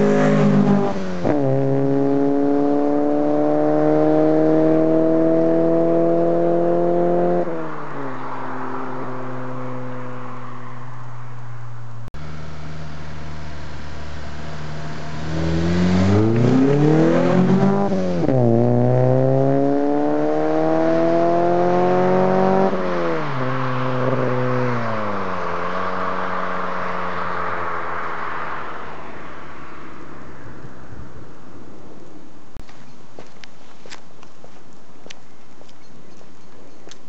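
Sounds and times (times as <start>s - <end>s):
car accelerating hard: 0.0s - 10.6s, 12.2s - 29.4s
tyre and road noise: 0.0s - 37.0s.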